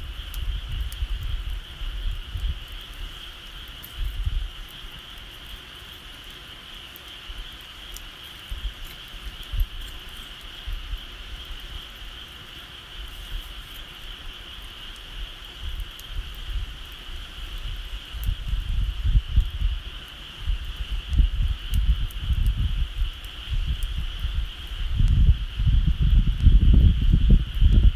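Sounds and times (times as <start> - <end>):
wind buffeting microphone: 0.0 - 4.7, 15.5 - 27.9
bonfire crackling: 0.0 - 27.9.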